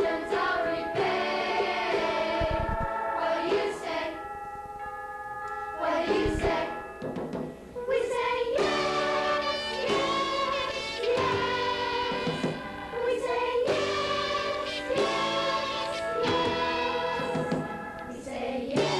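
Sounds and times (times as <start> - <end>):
youth choir singing: 0.0 - 4.2, 5.8 - 6.9, 7.8 - 18.9
instrumental accompaniment: 0.0 - 18.9
low thuds: 2.4 - 2.9.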